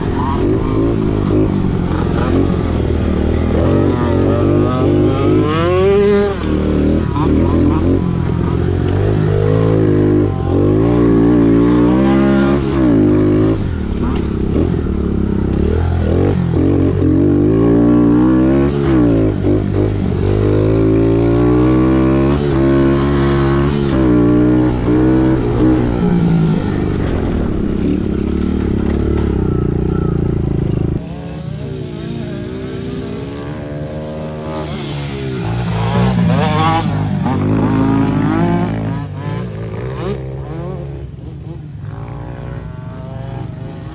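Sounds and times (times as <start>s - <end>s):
dirt bike engines revving: 0.0s - 43.9s.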